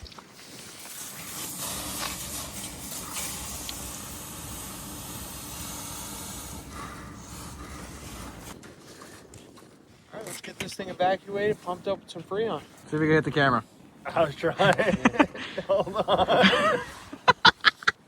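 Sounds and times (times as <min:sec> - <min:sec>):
gas hissing: 0:00.6 - 0:08.6.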